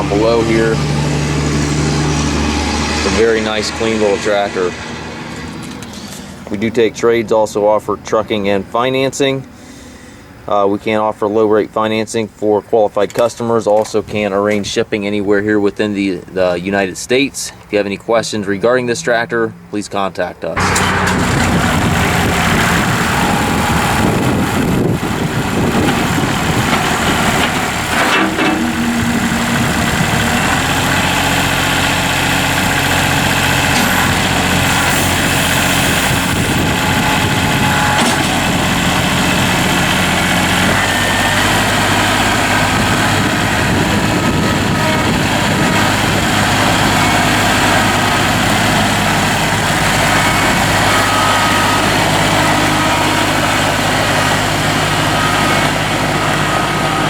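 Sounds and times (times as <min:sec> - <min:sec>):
tractor diesel engine running: 0:00.0 - 0:08.7, 0:20.6 - 0:57.0.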